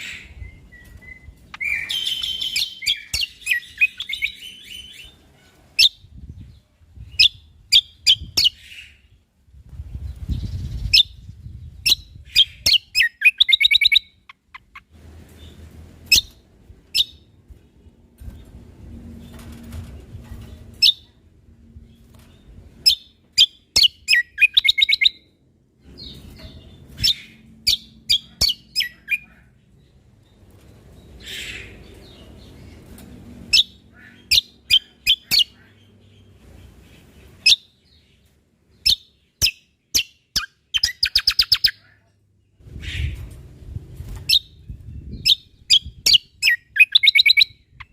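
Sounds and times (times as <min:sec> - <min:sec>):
faint low rumble: 0:14.6 - 0:23.3
songbird calling with sharp chips: 0:45.2 - 0:47.9.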